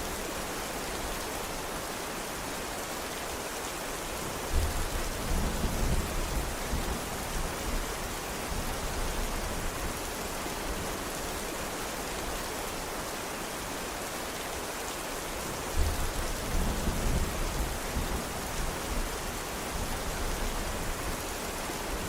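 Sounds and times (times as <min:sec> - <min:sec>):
steady rain falling: 0:00.0 - 0:22.0
low rumble of thunder: 0:04.5 - 0:07.9, 0:15.8 - 0:21.2.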